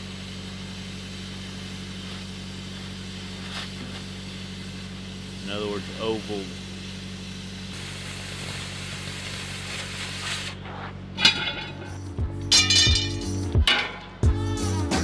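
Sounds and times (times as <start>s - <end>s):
hiss: 0.0s - 10.8s
engine hum: 0.0s - 15.0s
guitar background music: 11.8s - 15.0s.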